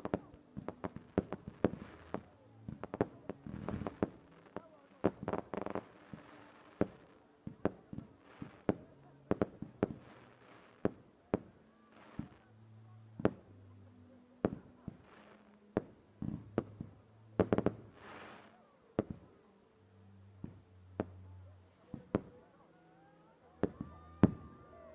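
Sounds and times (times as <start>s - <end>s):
fireworks hissing crackle: 0.1s - 11.0s, 17.4s - 18.6s.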